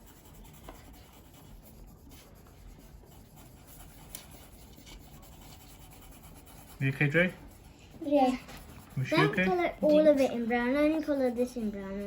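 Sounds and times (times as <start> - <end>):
pencil scratching on paper: 0.0 - 12.0.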